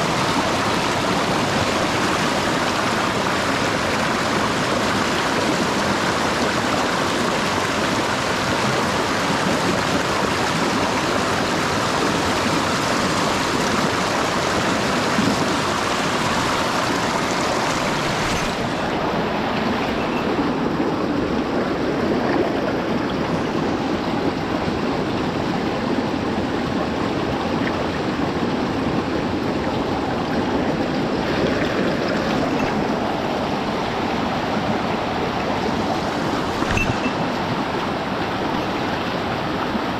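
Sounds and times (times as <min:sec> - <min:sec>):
stream water rushing over rocks: 0:00.0 - 0:39.9.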